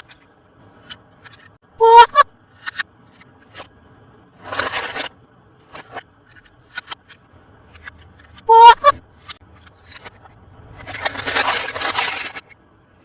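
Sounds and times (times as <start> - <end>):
rasping scrape: 4.3 - 12.6.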